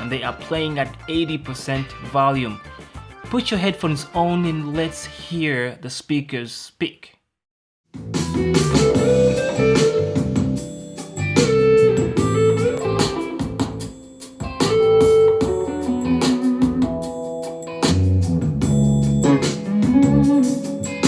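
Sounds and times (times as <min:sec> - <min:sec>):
guitar song through speaker: 0:08.3 - 0:13.8, 0:14.4 - 0:17.0, 0:19.2 - 0:21.0.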